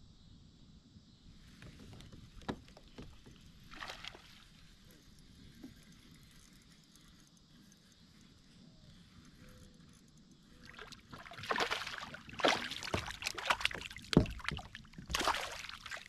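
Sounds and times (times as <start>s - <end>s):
knocks against kayak hull: 1.9s - 3.4s, 12.7s - 15.4s
water splashing and sloshing: 2.0s - 6.5s, 10.5s - 16.0s.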